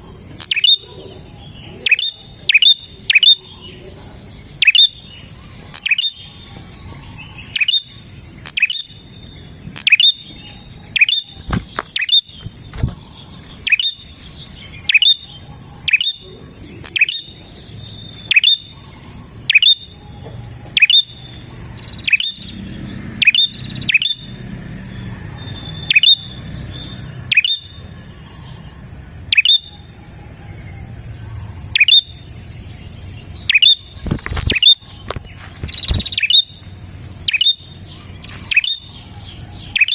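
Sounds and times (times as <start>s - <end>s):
bird calling sharp notes: 0.0s - 3.8s, 4.4s - 24.4s, 25.3s - 28.5s, 29.2s - 30.0s, 31.6s - 32.3s, 33.4s - 39.9s.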